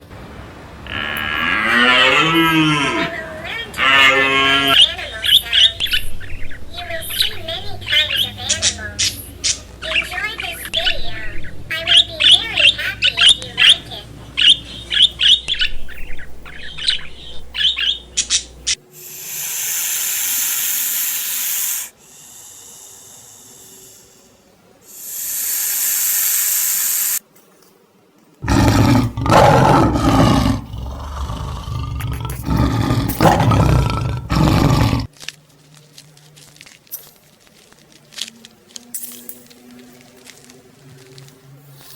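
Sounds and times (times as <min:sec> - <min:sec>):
rough roaring animal call: 0:00.8 - 0:03.1, 0:03.7 - 0:04.8, 0:28.4 - 0:35.1
hissing: 0:00.9 - 0:27.2, 0:28.4 - 0:35.1
small bird chirping: 0:03.9 - 0:19.9.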